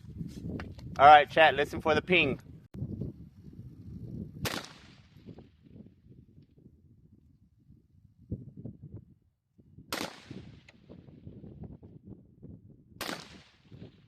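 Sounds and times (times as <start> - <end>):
wind rumble on microphone: 0.0 - 14.0
gunshots with echo: 4.4 - 5.2, 13.0 - 13.7.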